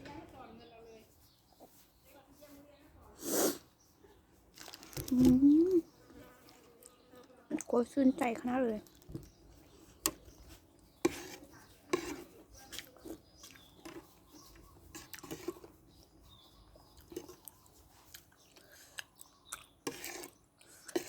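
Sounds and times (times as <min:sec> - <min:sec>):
person chewing with mouth smacks: 0:08.8 - 0:21.0.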